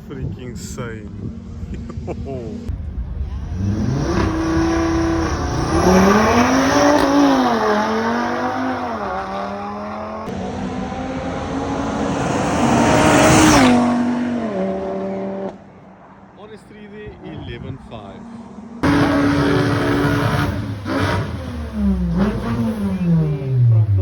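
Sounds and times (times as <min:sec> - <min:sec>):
drag racing car accelerating: 0:02.6 - 0:15.6, 0:18.2 - 0:24.0.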